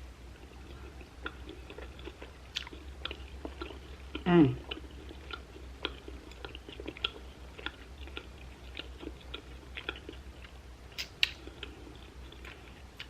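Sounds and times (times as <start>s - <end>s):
close chewing: 0.3s - 13.0s
wet mouth clicks: 11.0s - 11.8s.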